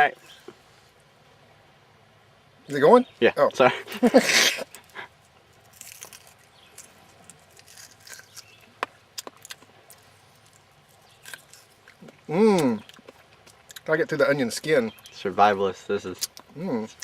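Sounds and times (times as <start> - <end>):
onion skin crackling and tearing: 4.7 - 13.9.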